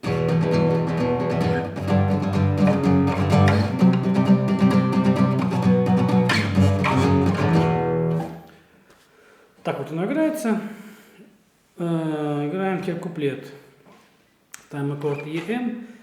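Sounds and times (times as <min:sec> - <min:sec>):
acoustic guitar strumming: 0:00.0 - 0:08.5.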